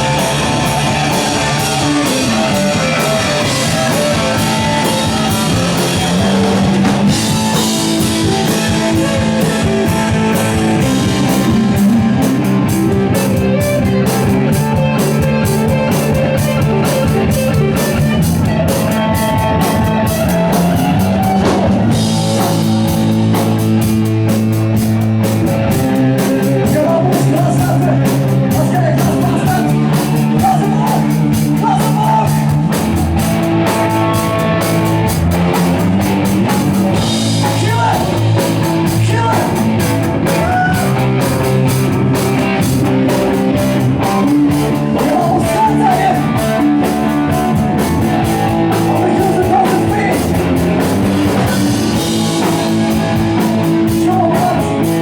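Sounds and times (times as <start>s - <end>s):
rock band playing live: 0.0s - 55.0s
person singing: 26.6s - 32.6s, 44.8s - 46.8s, 53.7s - 55.0s.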